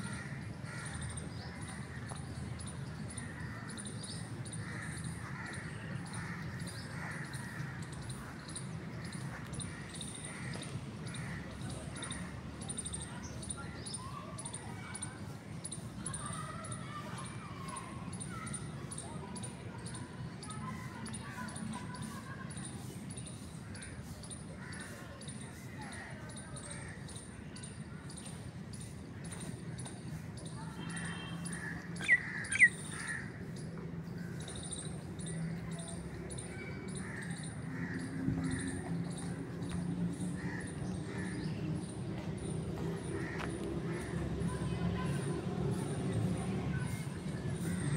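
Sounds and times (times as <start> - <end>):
small birds chirping: 0.1 - 45.1
lower wavering bird calls: 30.9 - 33.7
bird downward-sliding calls: 32.0 - 32.8
high fast chirping: 32.0 - 32.8.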